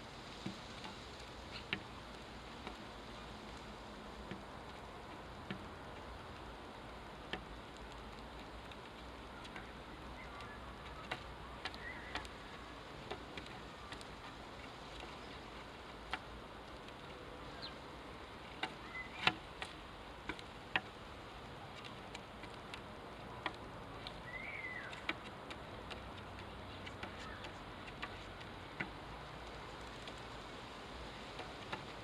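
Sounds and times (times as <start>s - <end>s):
sharp ticks: 0.4s - 17.8s
sparrow chirps: 11.7s - 12.6s, 17.5s - 17.8s, 18.8s - 19.3s, 24.2s - 25.0s.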